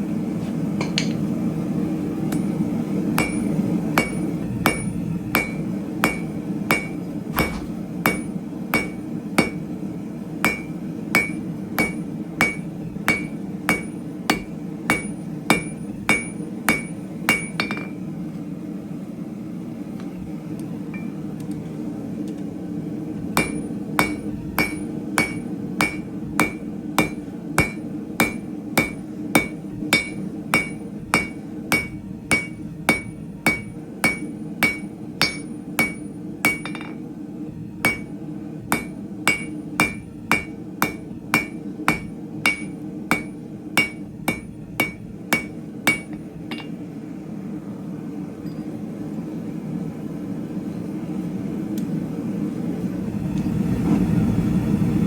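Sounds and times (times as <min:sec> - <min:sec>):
hammer striking steel on anvil: 0:00.8 - 0:01.3, 0:02.3 - 0:09.8, 0:10.4 - 0:18.0, 0:23.4 - 0:37.0, 0:37.8 - 0:46.8.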